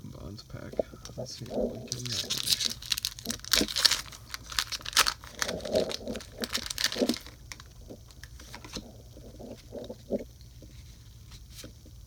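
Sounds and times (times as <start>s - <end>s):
foil wrapper crinkling and tearing: 1.4s - 8.9s.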